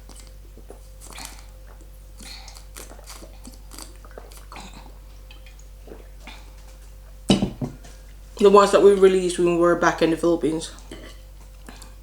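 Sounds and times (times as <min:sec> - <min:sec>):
person chewing: 0:00.0 - 0:06.9.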